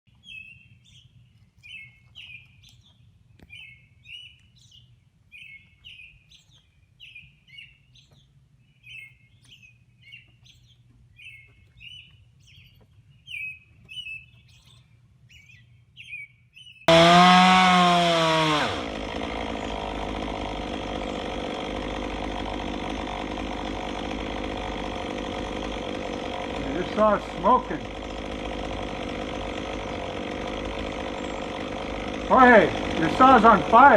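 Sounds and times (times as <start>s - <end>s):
chainsaw revving: 16.9s - 33.9s.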